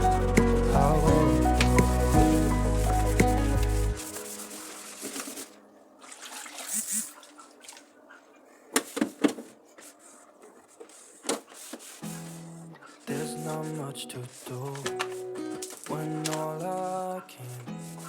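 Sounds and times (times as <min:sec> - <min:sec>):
background music: 0:00.0 - 0:05.6.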